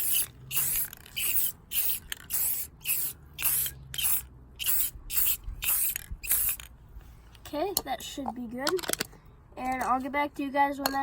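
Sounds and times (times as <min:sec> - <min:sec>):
spray can hissing bursts: 0:00.0 - 0:06.6.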